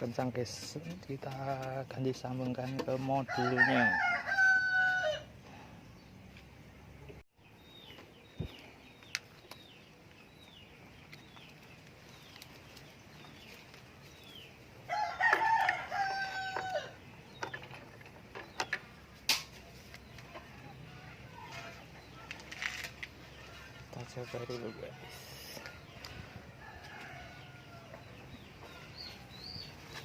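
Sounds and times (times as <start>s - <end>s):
rooster crowing: 3.3s - 5.3s, 14.9s - 17.0s
small birds chirping: 5.5s - 30.0s.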